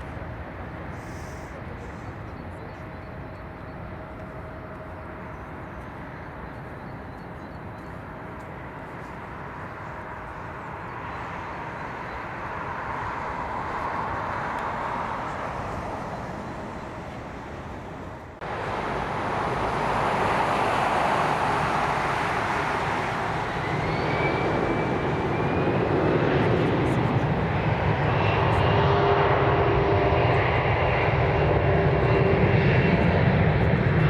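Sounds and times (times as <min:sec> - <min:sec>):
jet airliner engines: 0:00.0 - 0:34.0
rising engine whine: 0:08.0 - 0:34.0.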